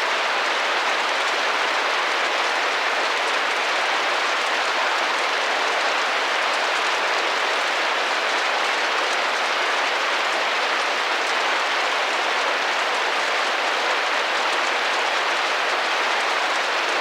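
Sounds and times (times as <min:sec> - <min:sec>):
rain drumming on a window: 0:00.0 - 0:17.0.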